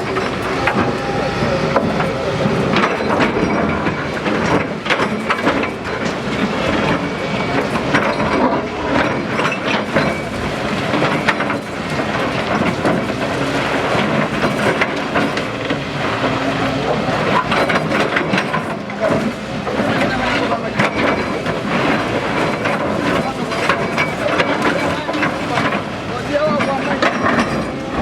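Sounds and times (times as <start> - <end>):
steady rumble: 0.0 - 17.4.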